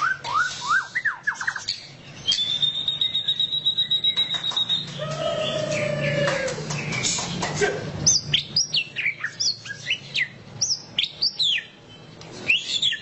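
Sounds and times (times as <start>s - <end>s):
bird singing sharp whistled notes: 0.0s - 5.6s, 12.4s - 13.0s.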